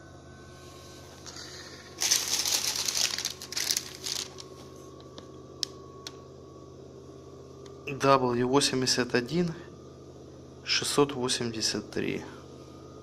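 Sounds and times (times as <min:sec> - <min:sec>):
washing machine spinning: 0:01.0 - 0:13.0
crackling rustling noise: 0:01.9 - 0:04.8.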